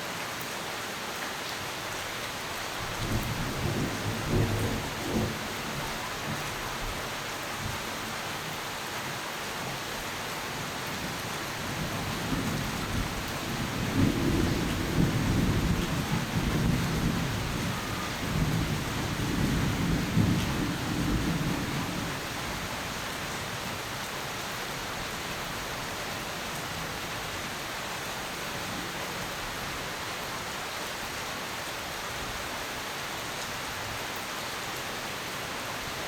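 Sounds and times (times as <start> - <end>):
steady rain: 0.0 - 36.0
thunder rumbling: 11.8 - 22.2.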